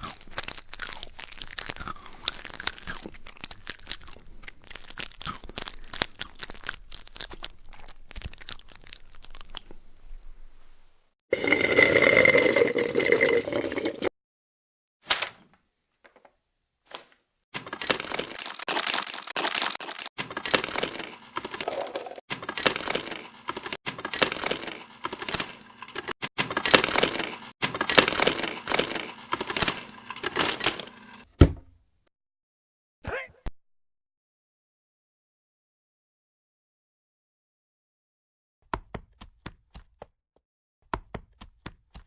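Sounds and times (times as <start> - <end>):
crackling cracking noise: 17.6 - 21.7, 22.3 - 31.1
short foley noises: 17.6 - 31.0.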